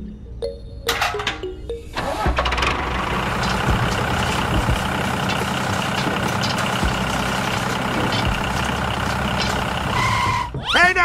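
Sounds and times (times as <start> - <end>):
heavy vehicle engine running: 1.9 - 10.6.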